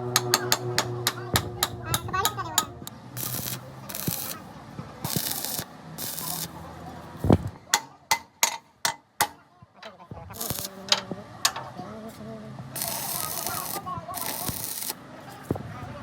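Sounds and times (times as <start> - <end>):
hammer striking metal: 0.0 - 4.2, 7.7 - 9.4
short hissing bursts: 3.2 - 6.6, 10.4 - 10.8, 12.8 - 15.0.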